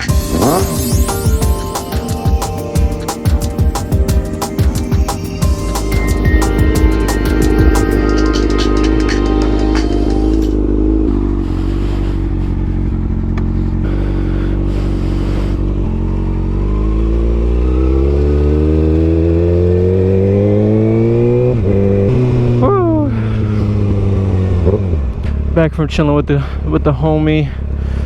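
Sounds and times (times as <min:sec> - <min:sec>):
motorcycle engine accelerating: 0:00.0 - 0:25.6.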